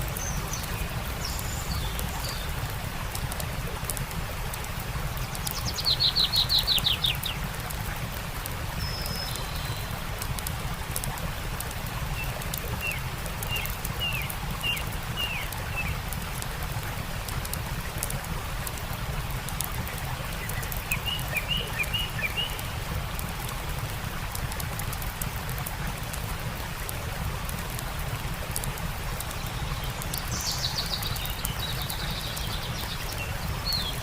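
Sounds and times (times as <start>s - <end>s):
wild birds singing: 0.0s - 3.1s, 5.2s - 7.6s, 12.1s - 16.0s, 20.0s - 23.0s, 29.2s - 34.0s
campfire crackling: 0.0s - 34.0s
stream rushing: 0.0s - 34.0s.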